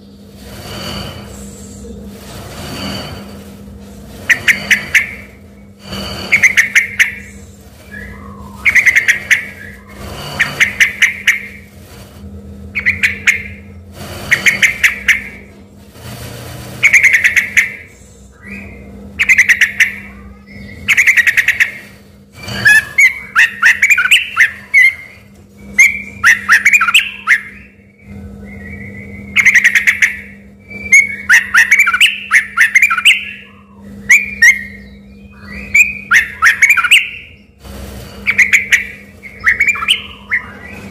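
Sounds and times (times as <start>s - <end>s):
faint steady hum: 0.0s - 40.9s
bulbul singing whistled phrases: 6.3s - 11.6s, 12.8s - 13.7s, 14.3s - 15.4s, 16.8s - 21.8s, 22.4s - 37.5s, 38.2s - 40.9s.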